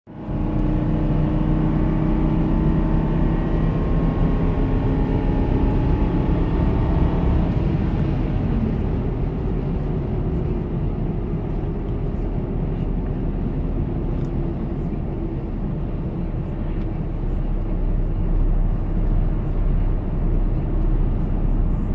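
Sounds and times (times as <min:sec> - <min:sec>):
truck engine revving: 0:00.2 - 0:12.2.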